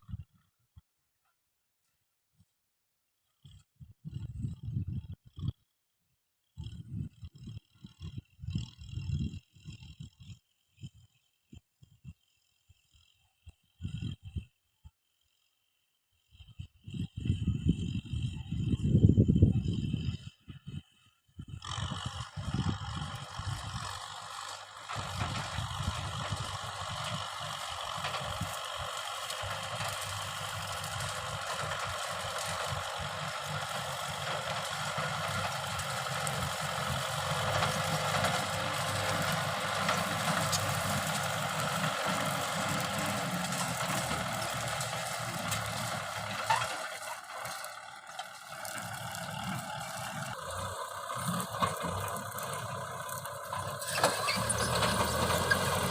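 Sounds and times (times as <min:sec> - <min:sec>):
tractor diesel engine running: 0:16.5 - 0:55.9
rough mechanical rattle: 0:22.0 - 0:55.9.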